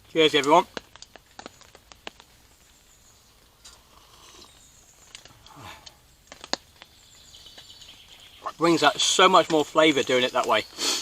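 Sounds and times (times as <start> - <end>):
small ticks and taps: 0.7 - 2.3, 6.3 - 6.9
person sipping coffee: 3.5 - 6.0.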